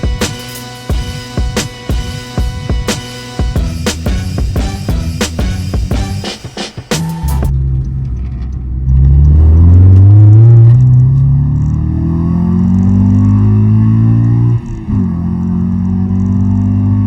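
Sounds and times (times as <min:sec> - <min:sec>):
car engine accelerating: 0:07.0 - 0:17.0.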